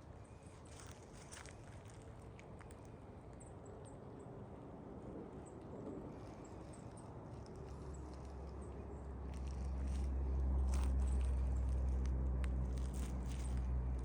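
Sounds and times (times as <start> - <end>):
footsteps on leaves: 0.5 - 2.2, 9.2 - 14.0.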